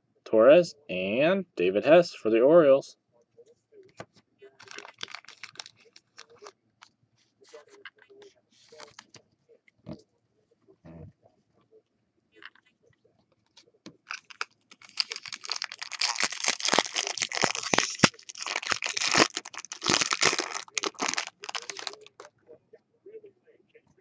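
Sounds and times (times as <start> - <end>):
foil wrapper tearing and crinkling: 4.6 - 6.5, 14.1 - 22.3.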